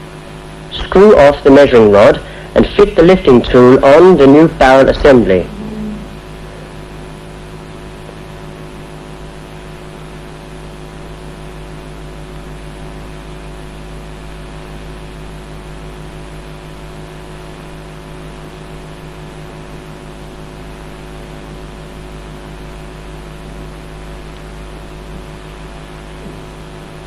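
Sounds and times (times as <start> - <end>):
steady hiss: 0.0 - 7.9
electrical hum: 0.0 - 27.0.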